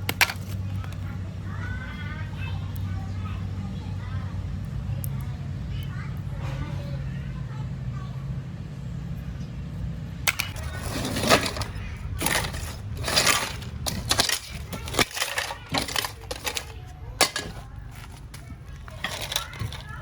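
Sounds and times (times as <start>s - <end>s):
concrete cracking and crunching: 0.0s - 1.0s, 10.3s - 20.0s.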